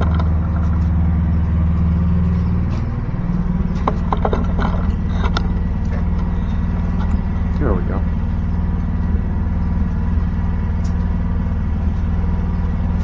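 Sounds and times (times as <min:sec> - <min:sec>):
engine running: 0:00.0 - 0:13.0
handling clicks and knocks: 0:03.7 - 0:07.7.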